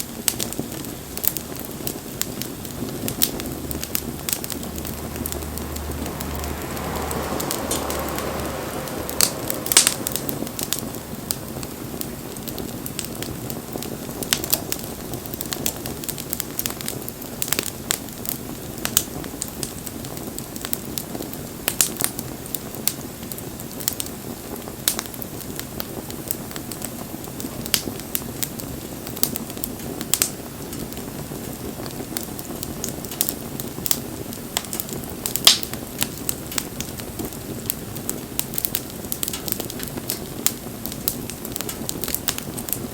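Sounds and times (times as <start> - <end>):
campfire crackling and popping: 0.0 - 42.9
soft rushing swell: 2.8 - 13.2.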